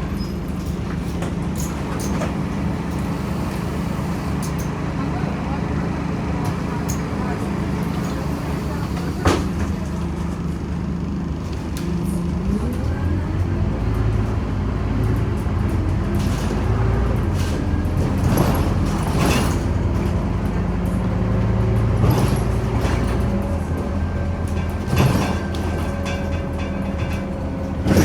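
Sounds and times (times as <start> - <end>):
bus engine running: 0.0 - 28.0
rattles and clatters: 15.0 - 28.0.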